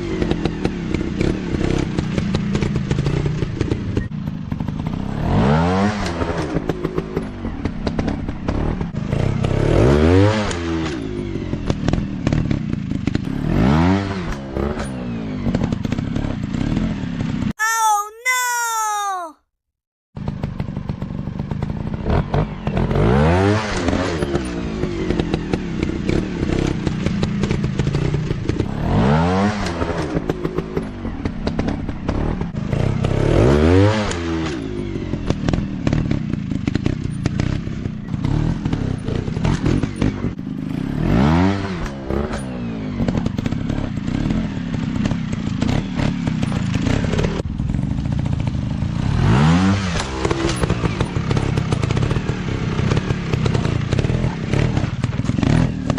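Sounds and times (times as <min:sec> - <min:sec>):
clatter: 0:34.0 - 0:40.8, 0:41.8 - 0:49.0, 0:49.9 - 0:55.9.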